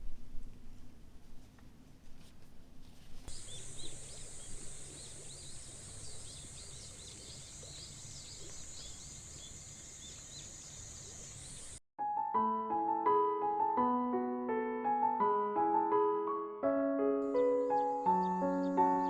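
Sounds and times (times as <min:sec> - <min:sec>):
insects buzzing: 0:03.3 - 0:11.8.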